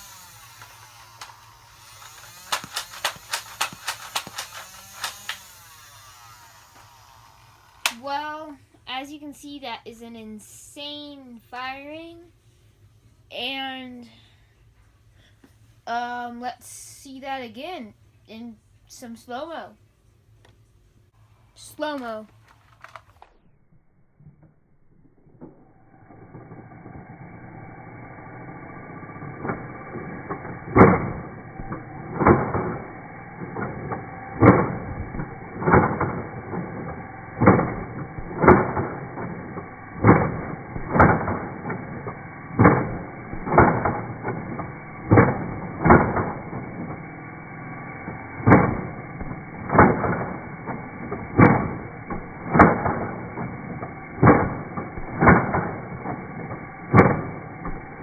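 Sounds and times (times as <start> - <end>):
low motor drone: 0.0 - 8.0, 23.4 - 58.0.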